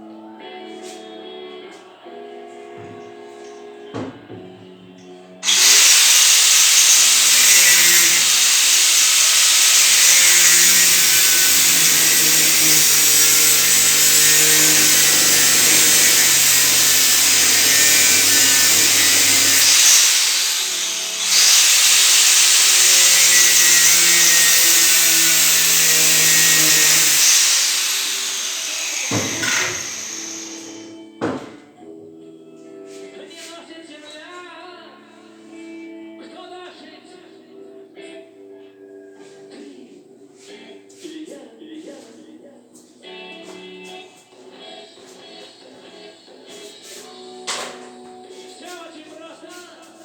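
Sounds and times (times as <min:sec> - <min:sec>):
power tool running: 0:05.4 - 0:30.9.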